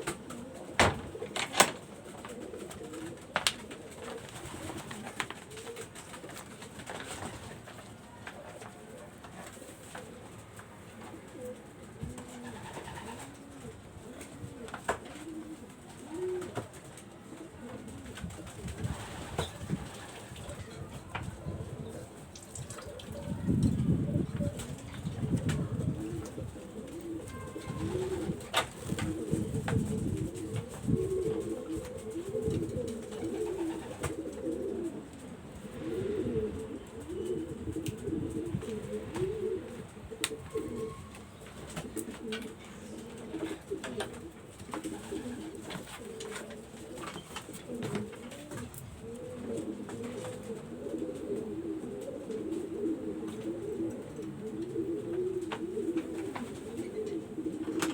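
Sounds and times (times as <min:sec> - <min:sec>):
pigeons cooing: 0:00.0 - 0:57.9.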